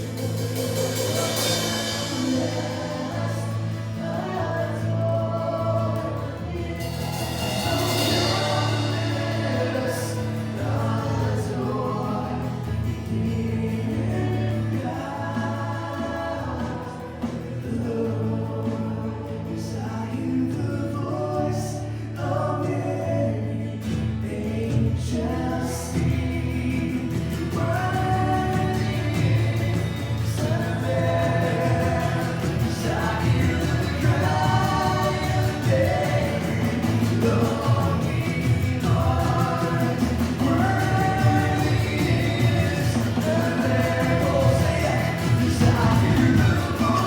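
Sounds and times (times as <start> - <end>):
cymbal swell: 0.0 - 4.0, 6.8 - 11.4
sustained instrumental backing: 0.0 - 4.8
many voices singing together: 0.0 - 47.0.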